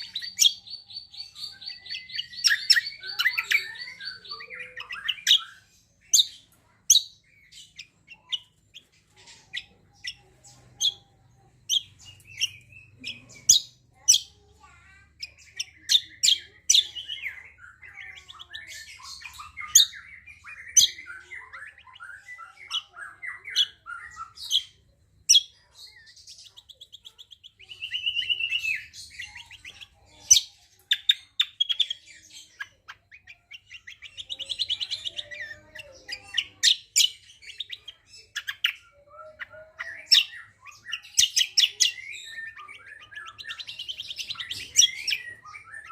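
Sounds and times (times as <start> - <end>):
songbird singing: 0.0 - 45.9.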